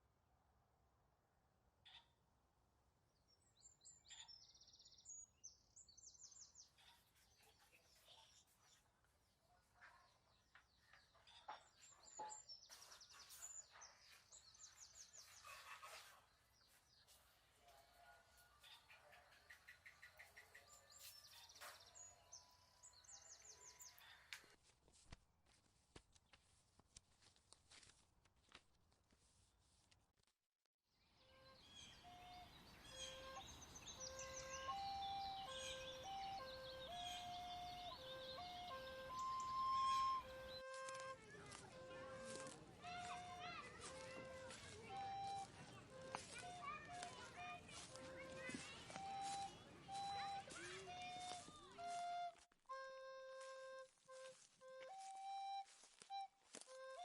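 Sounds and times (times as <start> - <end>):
birds chirping: 3.3 - 24.6, 31.2 - 52.4
slow soundtrack melody: 32.1 - 56.1.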